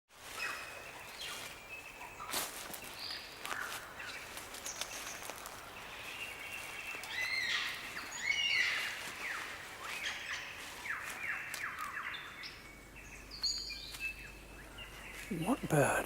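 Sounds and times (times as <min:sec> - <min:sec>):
birds whistling: 0:00.3 - 0:15.6
bird repeated arching calls: 0:03.4 - 0:12.6.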